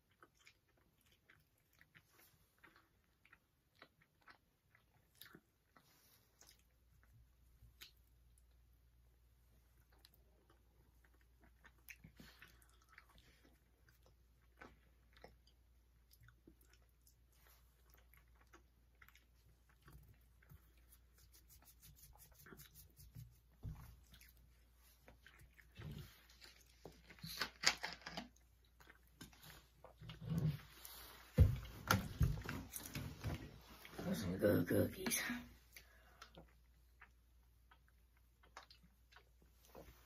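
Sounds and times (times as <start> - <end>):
people chewing cookies: 0.0 - 34.2, 35.6 - 40.0
small clicks and crackles: 25.8 - 28.5.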